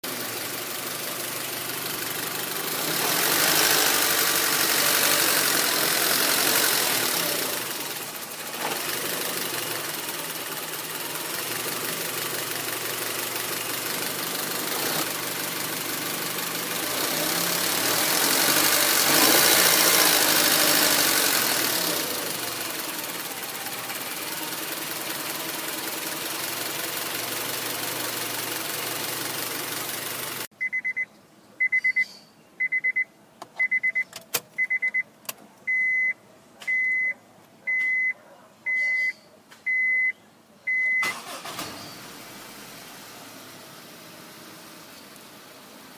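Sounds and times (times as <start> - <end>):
car engine idling roughly: 0.1 - 30.5.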